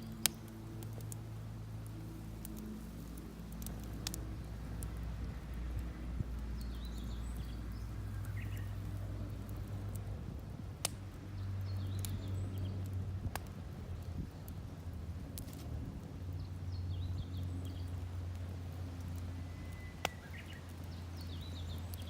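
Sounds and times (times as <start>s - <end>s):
firewood crackling and popping: 0.0s - 22.0s
low outdoor rumble: 0.0s - 22.0s
faint bird chirps: 19.3s - 22.0s.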